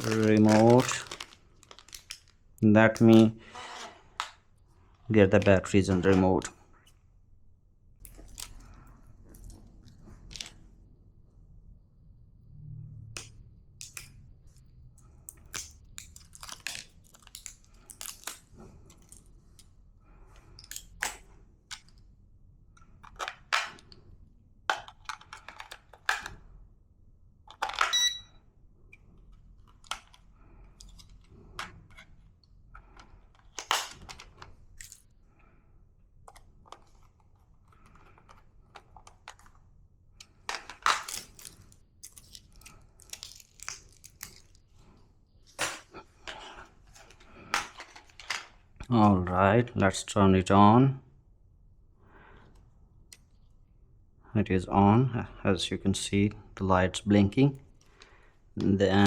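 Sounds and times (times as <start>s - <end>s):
clicks and knocks of handling: 24.7s - 26.4s, 29.3s - 35.1s, 36.3s - 39.6s.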